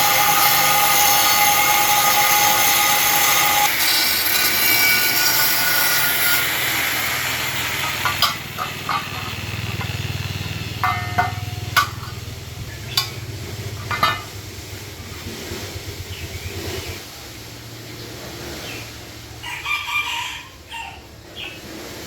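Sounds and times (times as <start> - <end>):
small engine humming: 0.0 - 17.0
sharp knocks: 12.9 - 14.4
rooster crowing: 19.4 - 21.1.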